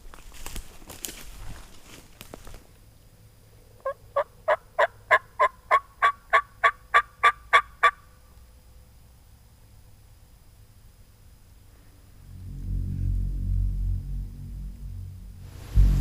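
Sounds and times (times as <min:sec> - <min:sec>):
footsteps in leaves: 0:00.0 - 0:02.8
wild turkey yelping: 0:03.8 - 0:08.1.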